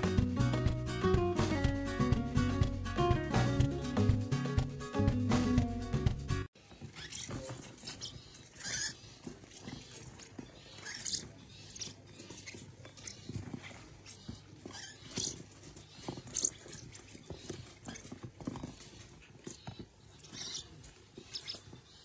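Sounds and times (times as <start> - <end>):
parrot squeaking and chirping: 6.8 - 22.0.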